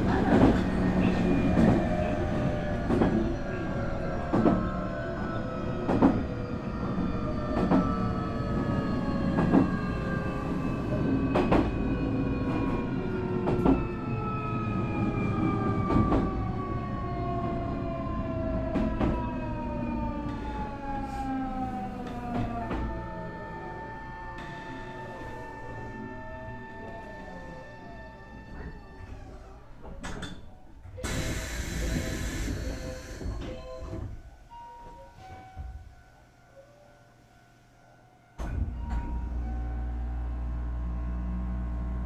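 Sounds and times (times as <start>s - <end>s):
rail-joint clicks: 28.5s - 34.2s.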